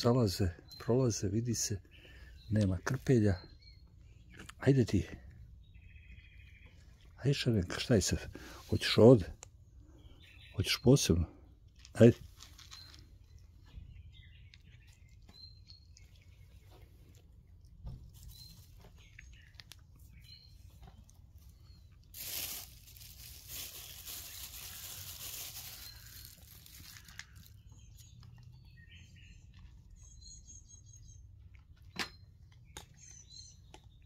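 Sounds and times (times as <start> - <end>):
small birds chirping: 0.0 - 34.0
rustling crinkling noise: 11.6 - 28.5.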